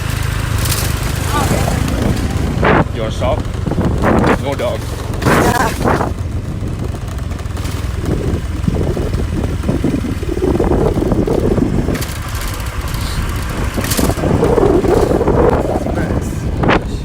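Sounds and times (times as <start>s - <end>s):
motor vehicle deep rumble: 0.0s - 17.0s
muffled voices: 1.2s - 3.5s, 15.5s - 17.0s.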